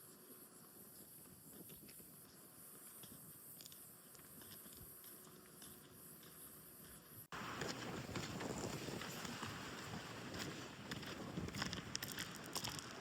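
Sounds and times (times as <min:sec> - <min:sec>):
wind buffeting microphone: 0:07.3 - 0:13.0.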